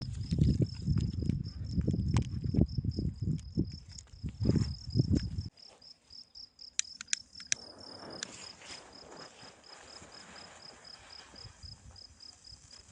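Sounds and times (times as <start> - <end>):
cricket chirping: 0.0 - 12.9
sharp clicks: 6.8 - 7.6.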